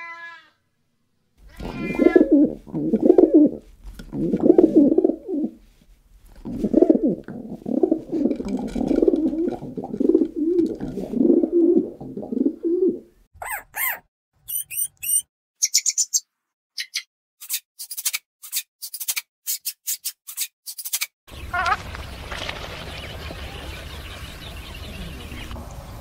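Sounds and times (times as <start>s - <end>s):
pigeon cooing: 1.6s - 5.6s, 6.4s - 14.0s
guinea pigs squeaking: 13.4s - 16.2s.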